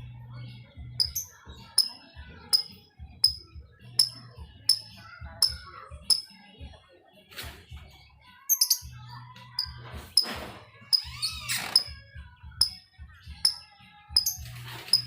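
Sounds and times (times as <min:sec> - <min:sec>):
bird ticking chips: 0:01.0 - 0:01.9, 0:02.6 - 0:03.4, 0:04.0 - 0:06.2, 0:08.5 - 0:08.8, 0:14.2 - 0:15.0
high bird chirps: 0:01.0 - 0:02.0, 0:04.0 - 0:06.3, 0:08.5 - 0:08.9, 0:14.2 - 0:15.0.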